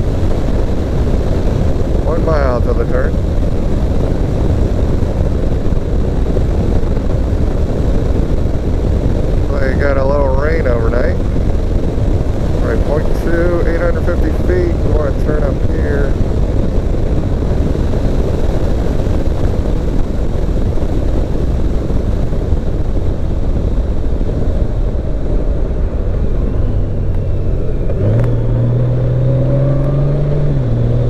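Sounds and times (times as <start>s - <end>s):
low wind rumble: 0.0s - 31.0s
motorcycle engine: 23.0s - 31.0s.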